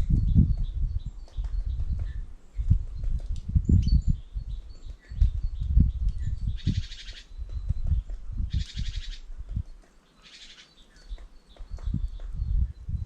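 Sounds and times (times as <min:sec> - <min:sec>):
bird trills: 0:06.3 - 0:07.5, 0:08.5 - 0:09.3, 0:10.1 - 0:12.3.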